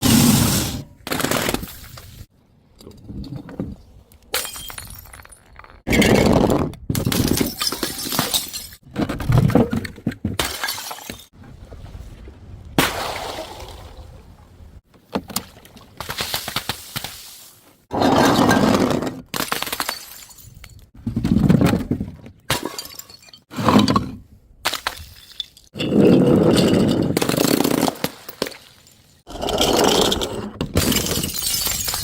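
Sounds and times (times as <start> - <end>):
glass bottles smashing: 7.1 - 8.8, 22.5 - 23.5, 30.8 - 32.0.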